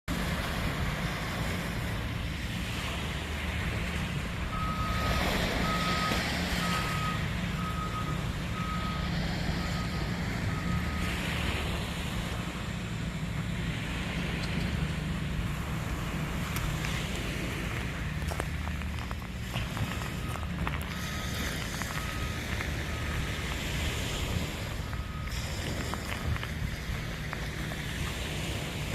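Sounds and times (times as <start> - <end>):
heavy vehicle engine running: 0.1 - 28.9
reversing alarm beeping: 4.0 - 11.6, 19.7 - 27.6.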